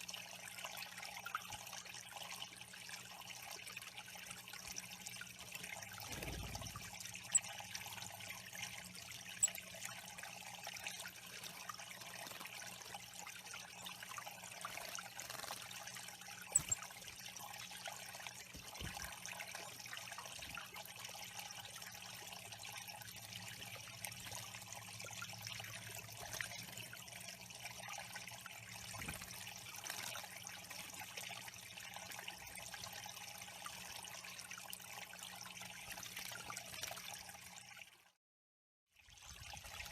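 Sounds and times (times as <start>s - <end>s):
water trickling: 0.0s - 38.1s, 39.0s - 39.9s.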